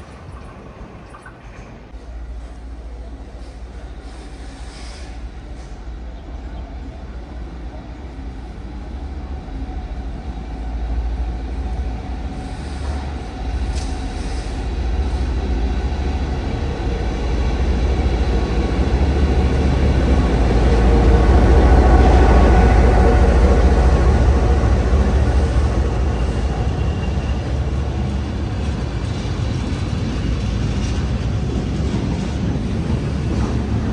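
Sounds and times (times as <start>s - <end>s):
train approaching rumble: 0.0s - 33.9s.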